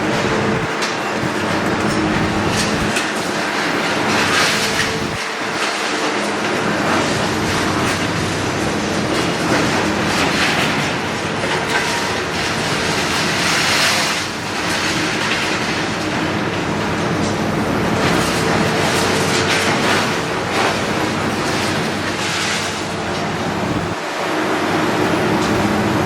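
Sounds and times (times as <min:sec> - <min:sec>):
excavator running: 0:00.0 - 0:26.0.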